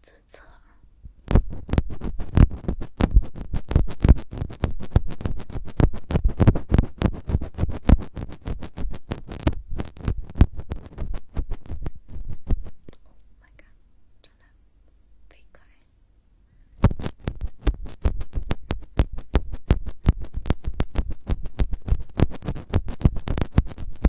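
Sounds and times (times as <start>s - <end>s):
scratching on microphone: 1.1s - 13.0s, 16.8s - 24.0s.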